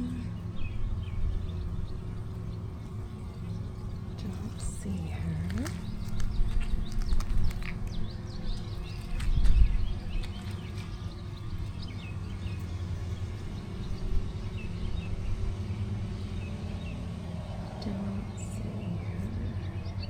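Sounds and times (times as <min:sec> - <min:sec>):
bees buzzing: 0:00.0 - 0:20.0
low rumble on microphone: 0:00.0 - 0:20.0
hive frames clicking: 0:05.4 - 0:11.2.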